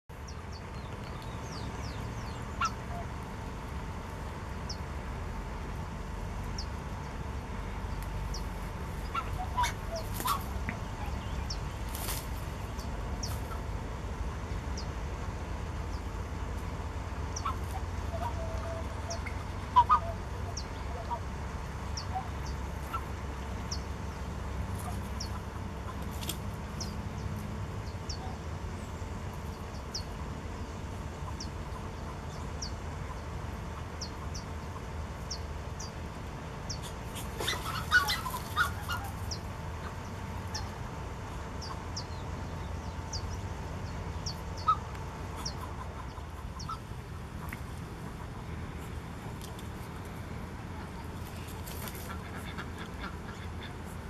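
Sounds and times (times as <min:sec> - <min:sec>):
steady low rumble: 0:00.1 - 0:54.0
bird calls: 0:00.2 - 0:03.6, 0:07.8 - 0:13.8, 0:17.3 - 0:36.0, 0:36.6 - 0:49.0, 0:50.8 - 0:54.0.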